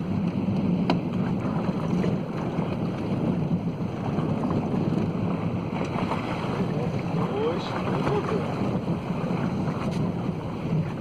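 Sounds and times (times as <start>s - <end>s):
boat engine humming: 0.0s - 11.0s
wind on the microphone: 0.0s - 11.0s.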